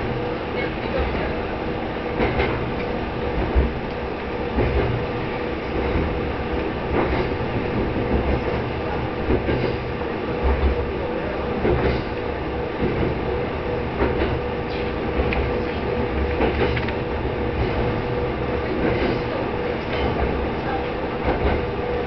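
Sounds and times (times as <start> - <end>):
railcar engine drone: 0.0 - 22.0
wheels clacking over rail joints: 13.9 - 22.0.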